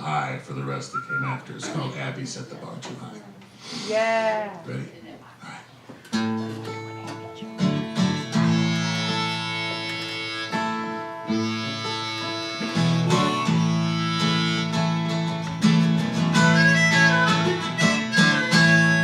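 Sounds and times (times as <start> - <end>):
guitar strumming chords: 6.2 - 19.0
harmonica sustained notes: 7.5 - 19.0.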